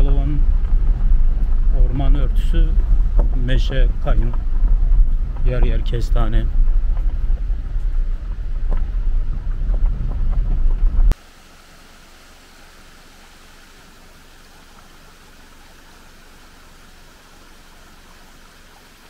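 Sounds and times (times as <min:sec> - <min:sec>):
vehicle on rough dirt road: 0:00.0 - 0:11.5
steady hiss: 0:11.1 - 0:19.0.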